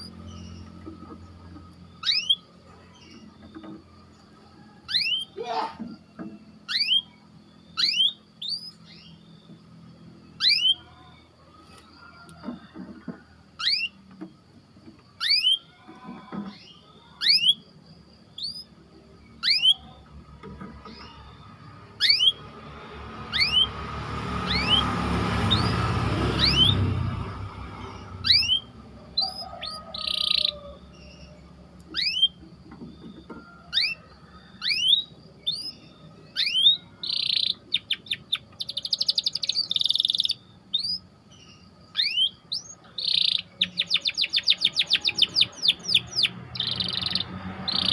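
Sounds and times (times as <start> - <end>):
canary chirping and trilling: 0.0 - 12.0, 13.5 - 47.9.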